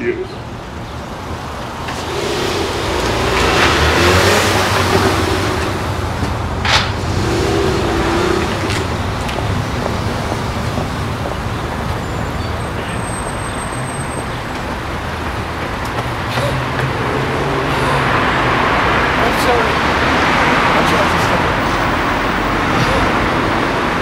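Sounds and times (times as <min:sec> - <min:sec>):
car engine idling: 0:01.2 - 0:11.8.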